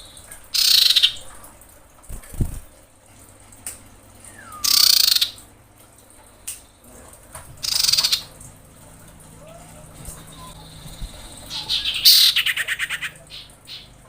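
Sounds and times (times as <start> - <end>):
bird harsh buzzy call: 0.6 - 1.2, 4.3 - 5.4, 7.6 - 8.3, 9.4 - 14.0.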